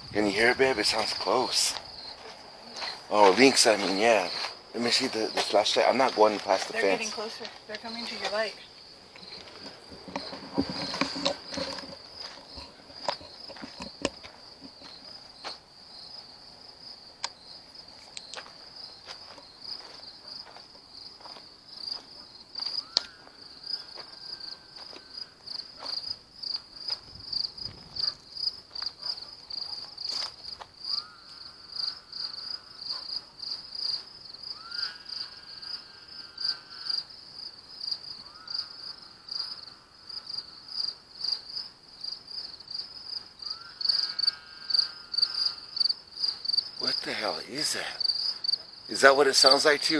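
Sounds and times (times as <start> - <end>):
crickets chirping: 0.0 - 49.9
knocks and footsteps: 0.9 - 15.6
faint drawn-out animal calls: 34.4 - 37.1, 38.0 - 40.4, 43.4 - 45.8.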